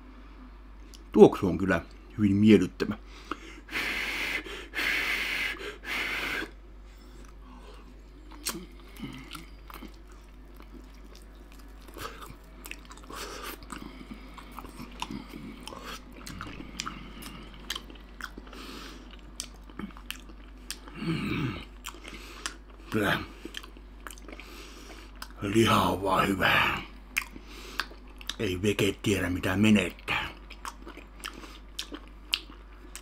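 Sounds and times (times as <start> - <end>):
puffs of breath: 3.0 - 7.2
toothless wet chewing: 7.0 - 21.0, 21.7 - 25.4, 27.1 - 28.4, 30.2 - 33.0.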